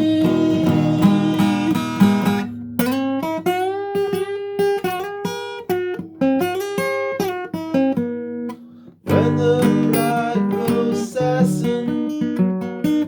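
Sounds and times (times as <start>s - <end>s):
person singing: 0.0s - 2.4s, 9.1s - 12.3s
acoustic guitar picking melody: 0.0s - 13.0s.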